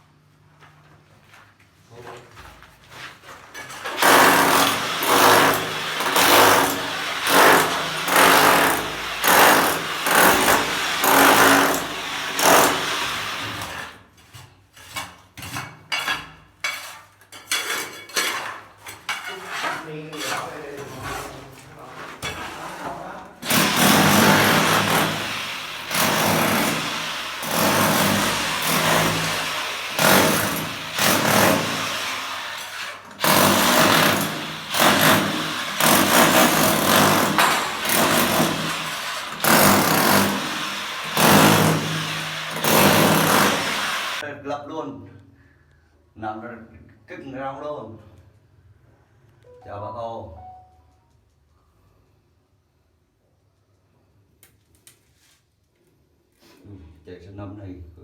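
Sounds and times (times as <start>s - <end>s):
demolition hammer chipping masonry: 3.8s - 14.0s, 23.4s - 44.2s.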